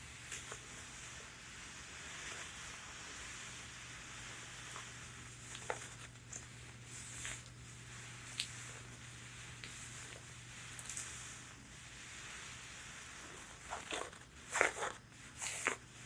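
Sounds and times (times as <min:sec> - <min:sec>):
fingernails scratching fabric: 0:11.2 - 0:16.0.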